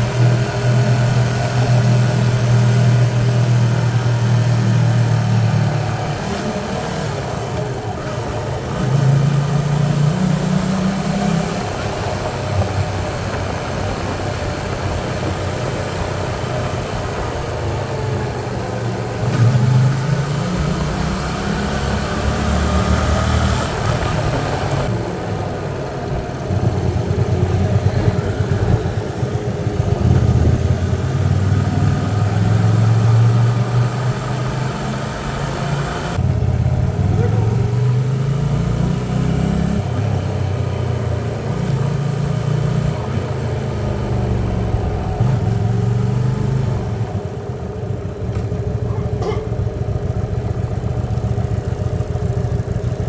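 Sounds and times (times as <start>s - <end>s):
motorcycle engine revving: 0.0s - 53.0s
road and wind noise: 0.0s - 53.0s.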